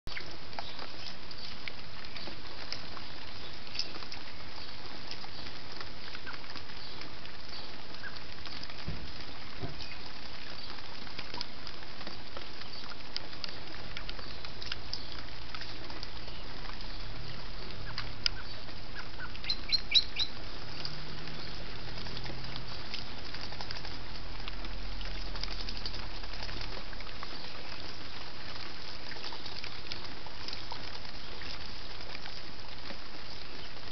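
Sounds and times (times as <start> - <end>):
faint bird chirps: 17.6 - 21.6.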